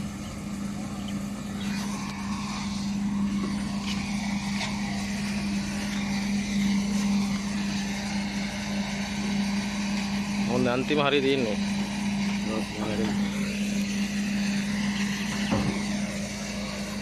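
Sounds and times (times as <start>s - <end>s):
heavy machine engine running: 0.0s - 17.0s.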